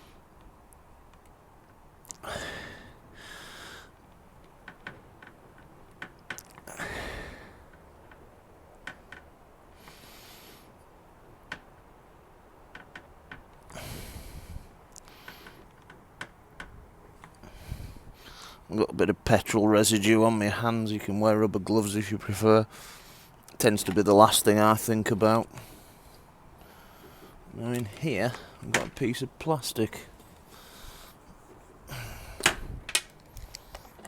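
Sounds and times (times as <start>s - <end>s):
man exhaling through nose: 2.2s - 3.9s, 6.7s - 7.6s, 13.7s - 15.5s, 31.9s - 32.8s.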